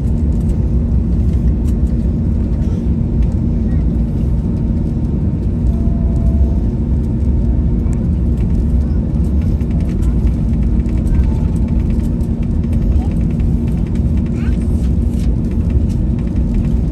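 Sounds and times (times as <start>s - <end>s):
airliner cabin engine rumble: 0.0s - 16.9s
faint light rattles: 8.1s - 16.9s.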